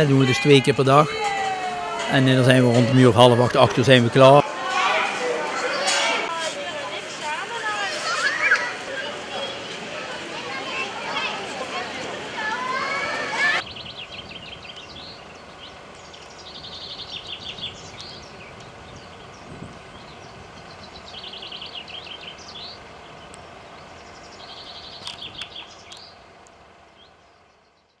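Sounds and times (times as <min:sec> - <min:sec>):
faint outdoor background noise: 0:00.0 - 0:28.0
songbird trilling: 0:13.6 - 0:26.2.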